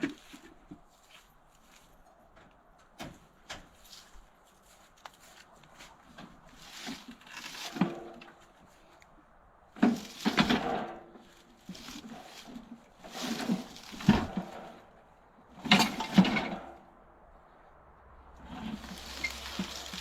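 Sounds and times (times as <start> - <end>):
scraping: 5.3 - 9.0, 9.8 - 16.9, 18.4 - 20.0
noisy rustle: 9.7 - 20.0.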